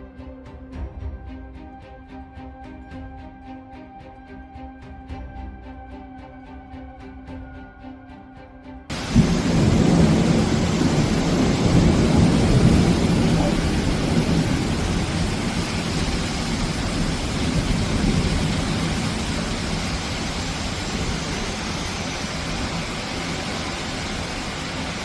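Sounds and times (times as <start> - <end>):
rain: 8.9 - 25.0
wind roaring: 8.9 - 25.0.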